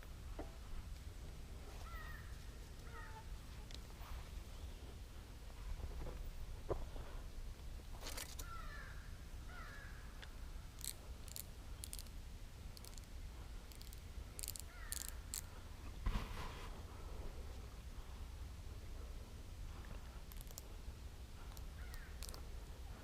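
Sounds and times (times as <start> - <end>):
sharp clicks: 10.2 - 13.1, 13.7 - 15.5, 20.3 - 20.6, 21.5 - 22.4.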